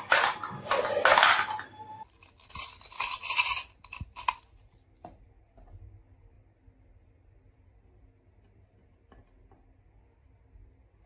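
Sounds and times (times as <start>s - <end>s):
marbles rattling down wooden track: 2.3s - 4.4s.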